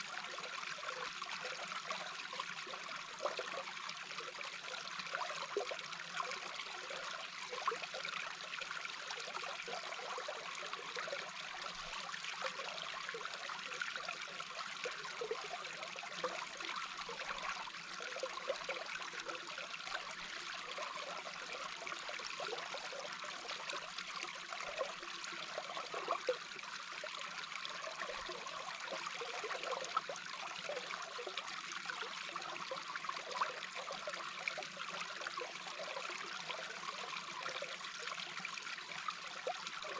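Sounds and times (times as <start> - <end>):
underwater rush of flowing water: 12.5 - 39.9.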